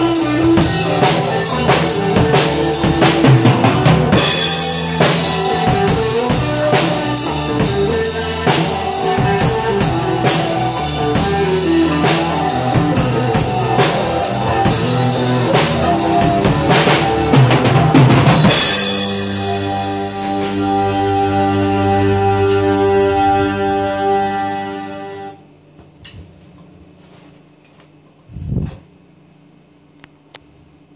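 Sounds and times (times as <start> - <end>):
drum kit beat: 0.0 - 23.7
pop backing track: 0.0 - 25.4.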